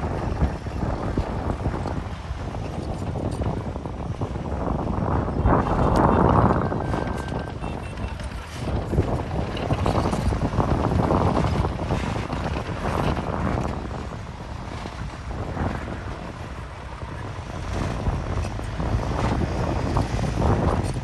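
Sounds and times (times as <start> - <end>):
diesel earthmoving machinery rumbling: 0.0 - 21.0
machinery clatter: 5.6 - 21.0.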